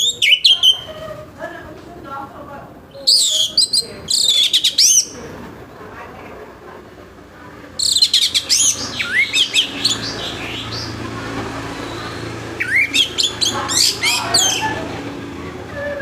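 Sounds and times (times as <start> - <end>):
thrush singing: 7.7 - 16.0.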